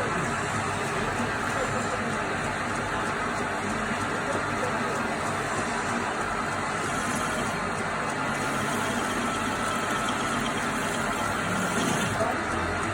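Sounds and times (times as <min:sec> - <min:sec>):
metal lathe running: 0:00.0 - 0:12.9.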